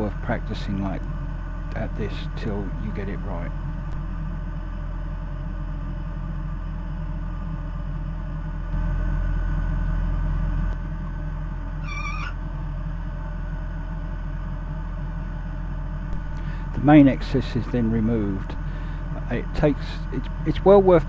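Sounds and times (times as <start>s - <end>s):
steady low hum: 0.0s - 21.0s
wavering high-pitched call: 11.8s - 12.4s.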